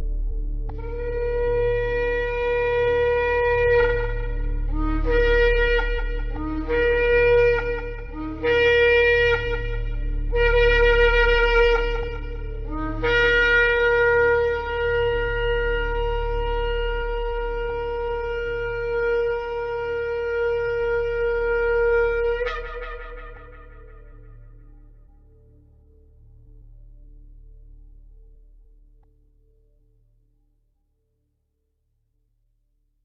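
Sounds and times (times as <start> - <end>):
steady low hum: 0.0 - 29.1
ram's horn trumpet blasts: 0.7 - 24.7.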